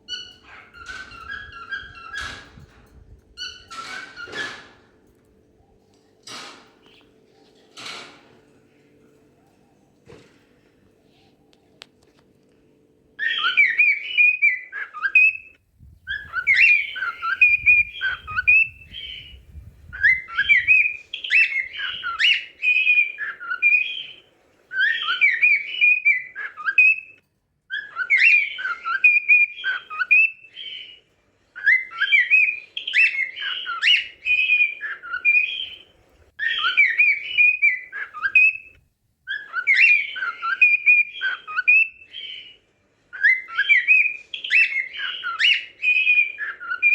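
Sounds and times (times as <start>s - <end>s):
cockatiel whistling: 16.1s - 19.4s, 36.4s - 38.7s, 39.3s - 42.5s.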